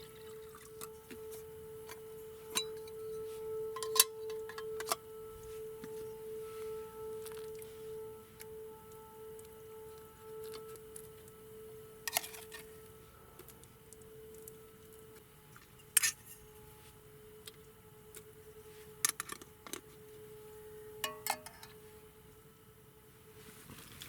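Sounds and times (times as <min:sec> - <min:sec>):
steady ringing hum: 0:00.0 - 0:23.9
metal cookware clinking: 0:21.0 - 0:21.6.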